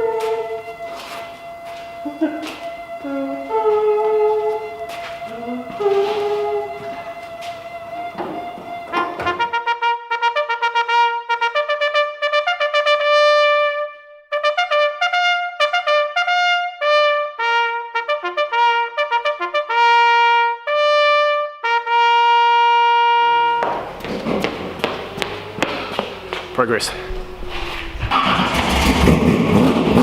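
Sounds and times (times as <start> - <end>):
garage noise: 0.0 - 9.6, 23.4 - 30.0
solo trumpet melody: 0.0 - 24.0.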